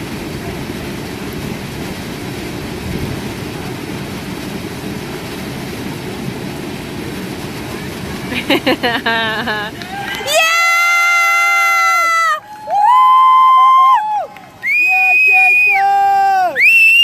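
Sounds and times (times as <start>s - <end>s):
fast river water: 0.0s - 17.0s
waterfall rushing: 0.0s - 17.0s.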